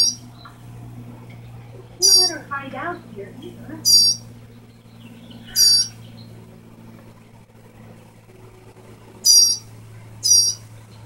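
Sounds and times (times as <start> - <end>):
bird high-pitched calls: 0.0 - 0.6, 1.4 - 2.5, 3.1 - 6.4, 9.2 - 11.0
steady low hum: 0.0 - 11.0.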